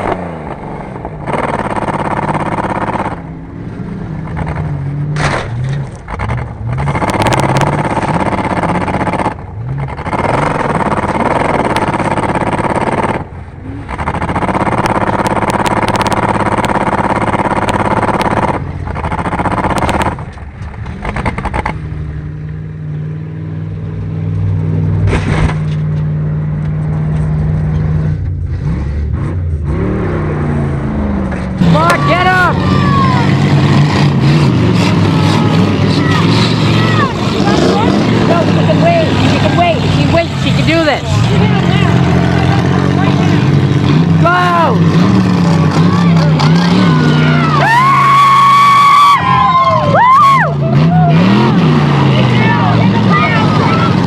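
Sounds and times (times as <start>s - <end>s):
car engines revving: 0.0s - 54.0s
knocks and scrapes: 4.2s - 21.9s, 24.9s - 29.8s, 31.2s - 32.0s.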